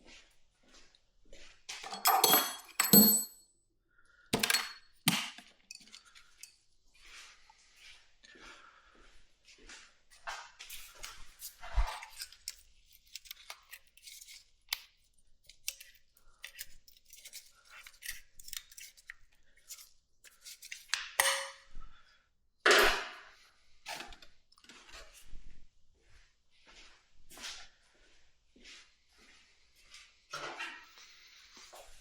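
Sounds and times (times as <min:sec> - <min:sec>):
metal tools clinking: 0:01.8 - 0:03.4, 0:04.4 - 0:04.8, 0:05.7 - 0:06.5.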